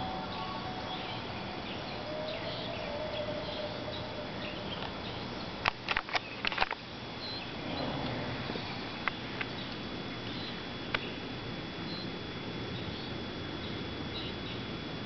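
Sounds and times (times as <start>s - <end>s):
faint bird chirps: 0.0s - 5.5s, 7.2s - 8.0s.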